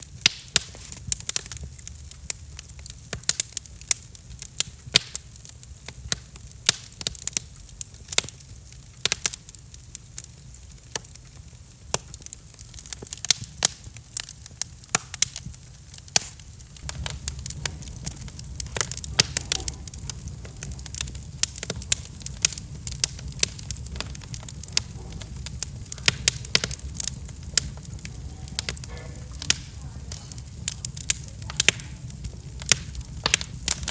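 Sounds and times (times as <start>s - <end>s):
sharp pops of fire: 0.0s - 33.9s
wood fire crackling: 0.0s - 33.9s.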